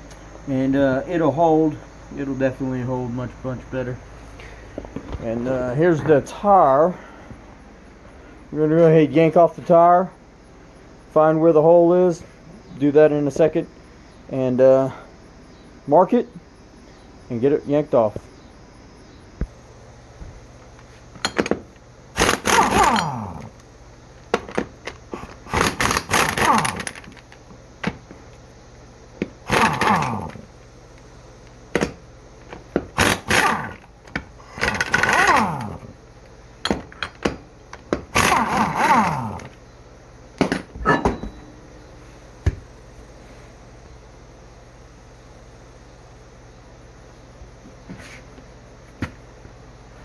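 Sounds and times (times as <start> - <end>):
power tool bursts winding down: 22.2 - 23.6, 25.4 - 27.2, 29.4 - 30.4, 33.0 - 35.9, 38.1 - 39.6.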